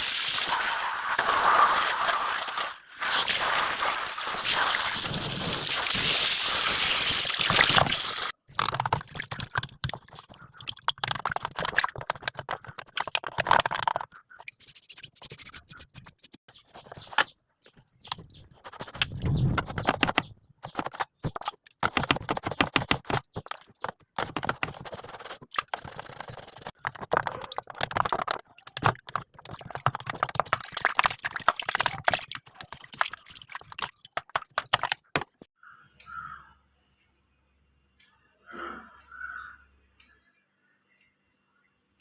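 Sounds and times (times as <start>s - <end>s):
hand scrubbing machine parts: 11.0s - 17.3s, 18.0s - 35.4s.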